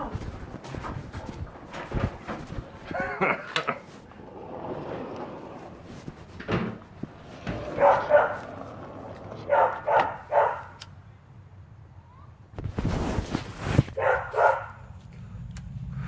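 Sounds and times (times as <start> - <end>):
dog barking in short yelps: 9.5 - 10.8, 14.0 - 14.8.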